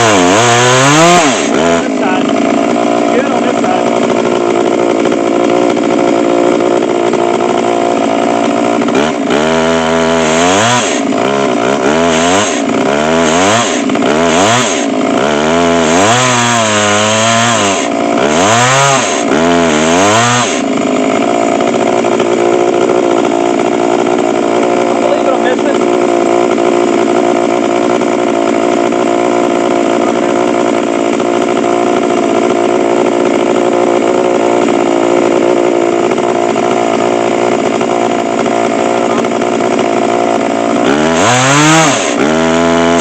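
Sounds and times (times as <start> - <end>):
chainsaw ripping a log: 0.0 - 43.0.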